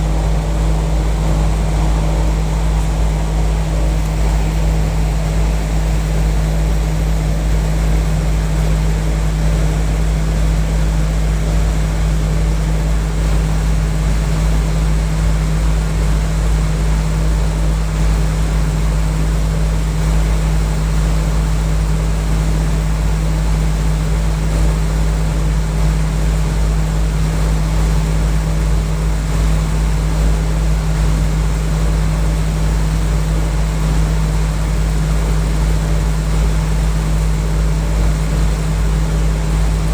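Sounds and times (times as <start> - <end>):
air conditioning unit humming: 0.0 - 12.2, 30.0 - 39.9.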